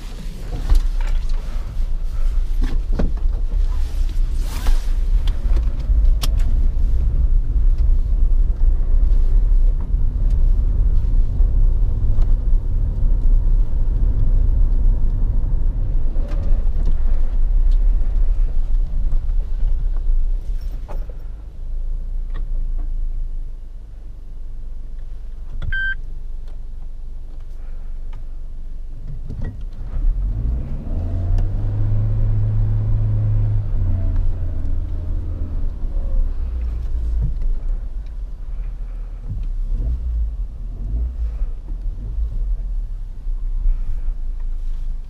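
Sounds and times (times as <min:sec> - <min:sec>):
short beep: 0:25.7 - 0:26.0
car engine pulling under load: 0:29.4 - 0:45.0.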